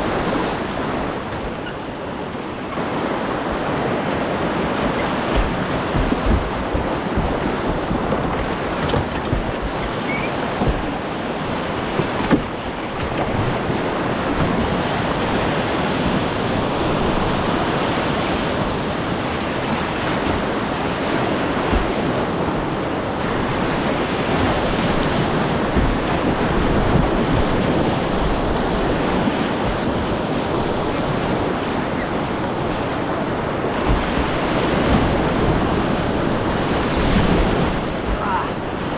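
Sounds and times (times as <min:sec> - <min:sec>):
whitewater rushing: 0:00.0 - 0:38.9
wind on microphone: 0:00.0 - 0:38.9
low thumps: 0:04.7 - 0:14.8.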